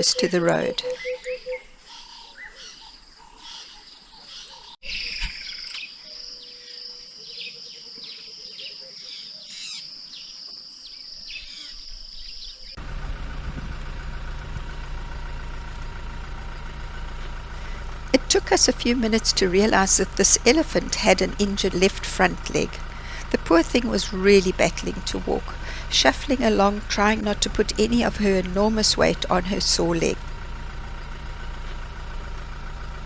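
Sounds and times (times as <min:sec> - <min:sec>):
birds calling: 0:00.0 - 0:13.0, 0:14.2 - 0:32.8
vehicle engine idling: 0:12.6 - 0:33.0.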